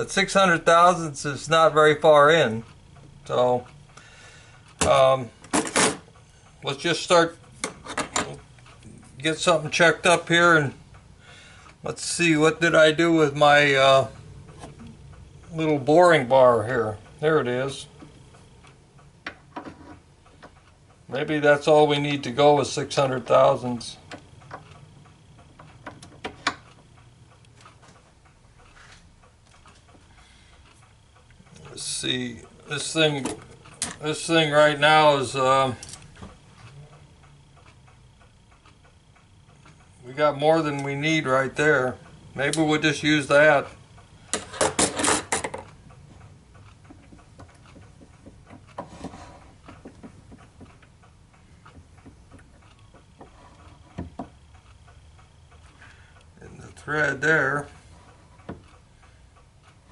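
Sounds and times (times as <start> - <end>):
metal on metal clicks: 4.7 - 11.1.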